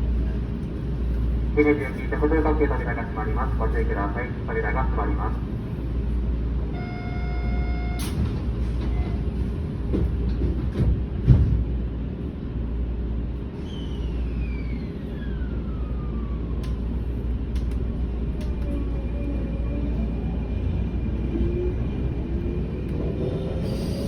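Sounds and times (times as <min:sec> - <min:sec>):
train rumbling: 0:00.0 - 0:24.0
train doors clunking shut: 0:07.9 - 0:11.8.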